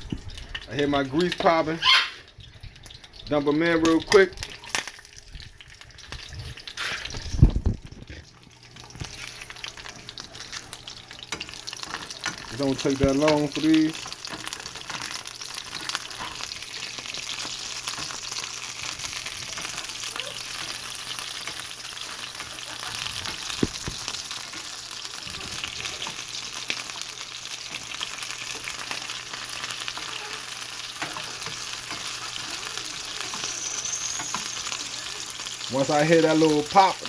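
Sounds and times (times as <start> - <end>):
frying grease sizzling: 0.0 - 37.0.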